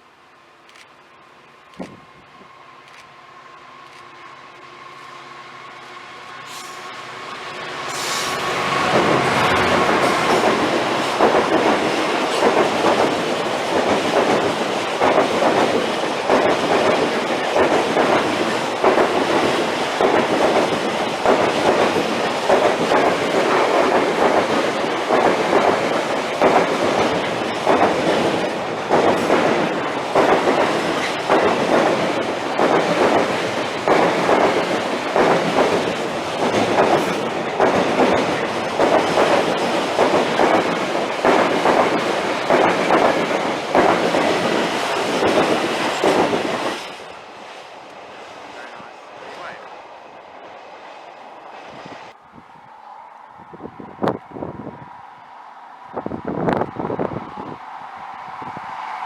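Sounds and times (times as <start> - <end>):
train wheels clattering on rails: 7.8 - 49.6.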